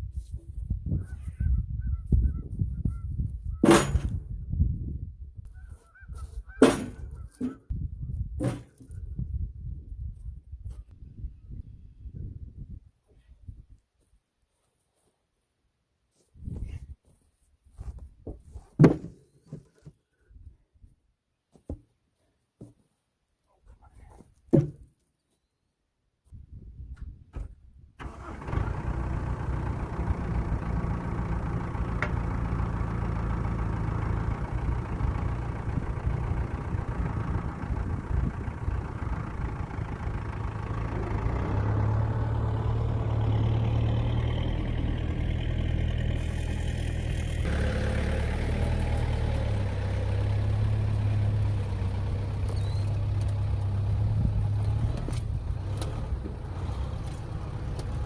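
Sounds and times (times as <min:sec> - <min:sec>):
tractor engine starting and running: 0:03.5 - 0:04.4, 0:26.9 - 0:58.0.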